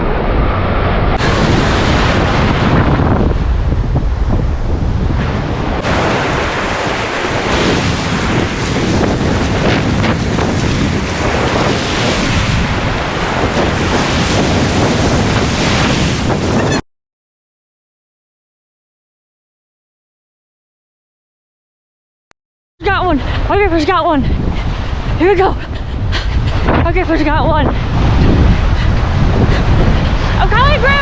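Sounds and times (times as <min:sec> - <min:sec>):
wind buffeting microphone: 0:00.0 - 0:16.8, 0:22.9 - 0:31.0
lake waves breaking: 0:01.0 - 0:16.8.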